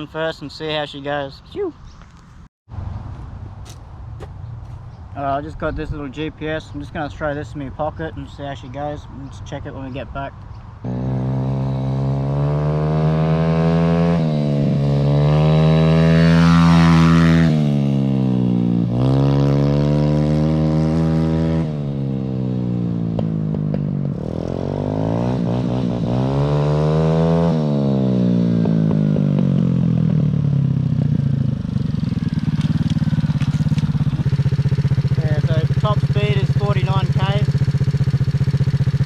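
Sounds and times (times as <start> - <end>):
pit bike engine shifting gears: 22.6 - 39.0.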